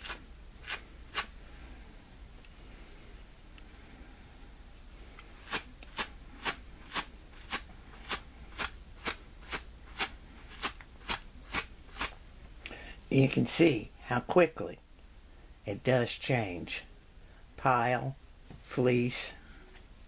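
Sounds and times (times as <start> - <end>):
wire brush raking fabric: 0.0 - 1.4, 4.9 - 12.2.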